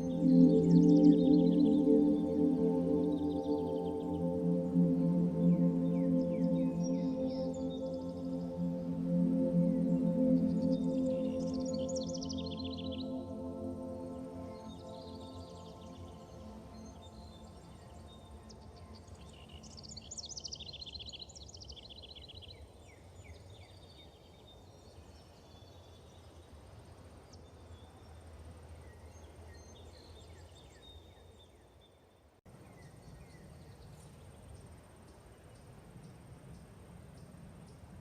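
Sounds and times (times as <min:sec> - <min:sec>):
steady low rumble: 0:00.0 - 0:17.7
small birds calling and singing: 0:00.0 - 0:26.4.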